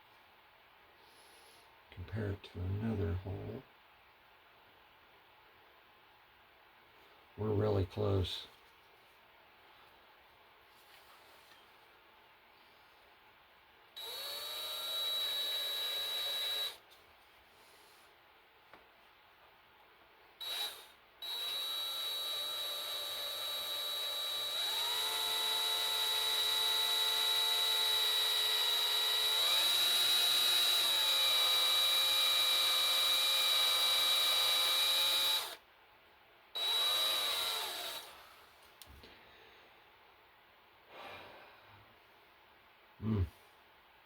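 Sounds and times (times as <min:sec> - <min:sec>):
power drill whining: 0:14.0 - 0:16.8, 0:20.4 - 0:35.6, 0:36.6 - 0:38.4.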